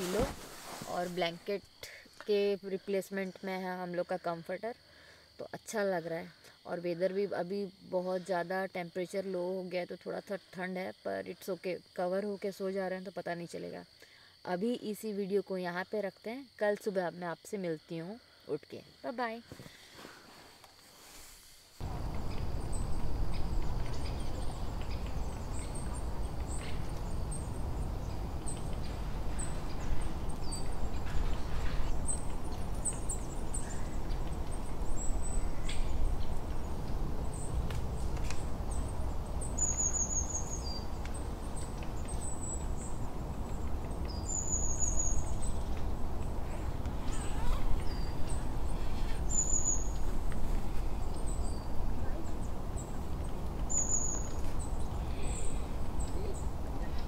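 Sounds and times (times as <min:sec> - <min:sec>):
birds chirping: 0:21.8 - 0:57.0.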